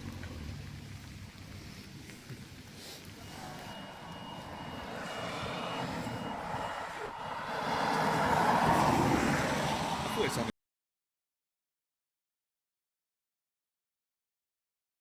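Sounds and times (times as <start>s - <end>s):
car engine and tyres: 0.0s - 10.5s.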